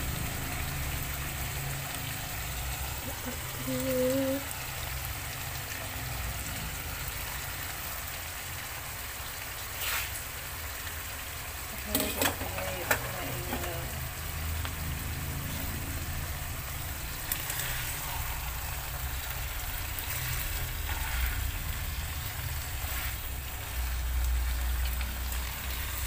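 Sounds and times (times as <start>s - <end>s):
food sizzling in a wok: 0.0s - 26.0s
spatula scraping a pan: 9.8s - 10.2s, 17.3s - 23.4s.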